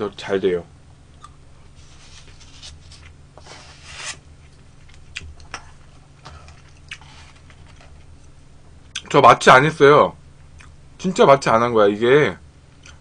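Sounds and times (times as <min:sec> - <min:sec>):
person chewing: 0:04.8 - 0:08.0.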